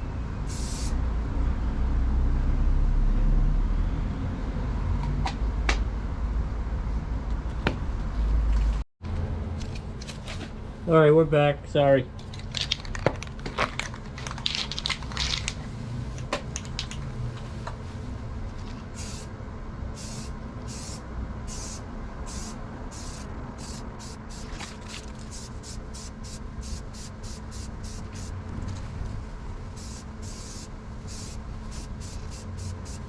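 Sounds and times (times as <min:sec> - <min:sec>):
spray can hissing: 0:00.5 - 0:01.0, 0:19.0 - 0:19.3, 0:20.0 - 0:24.6, 0:25.2 - 0:28.4, 0:29.8 - 0:33.0.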